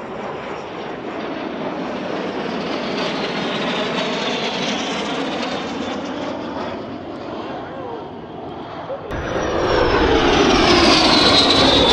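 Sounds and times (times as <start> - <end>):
jet aircraft flying past: 0.0 - 11.9.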